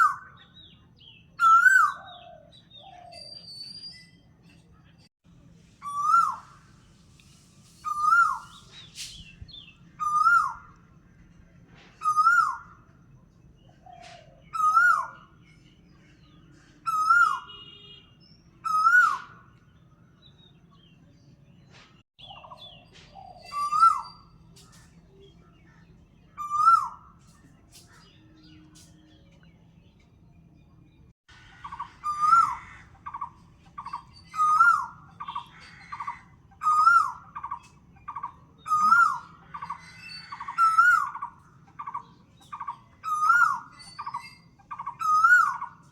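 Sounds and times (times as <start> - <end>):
faint chirps of other birds: 0.0 - 45.9
bird calling: 7.8 - 10.8, 13.7 - 18.0, 18.6 - 19.6, 22.2 - 28.7, 31.3 - 45.9.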